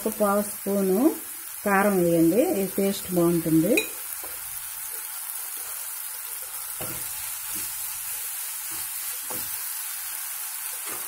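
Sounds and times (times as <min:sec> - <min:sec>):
tomato sizzling in oil: 0:00.0 - 0:11.0.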